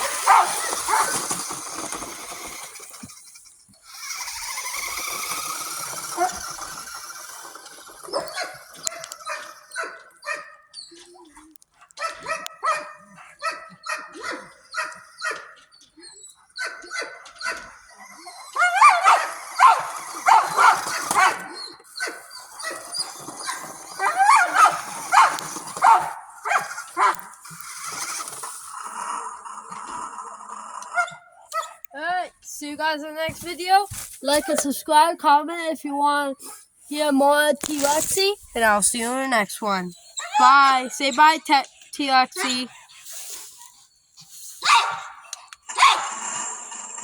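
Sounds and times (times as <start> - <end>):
dog yipping and whining: 0.0 - 28.4, 30.9 - 31.9, 33.9 - 34.6, 39.9 - 41.2, 44.6 - 46.6.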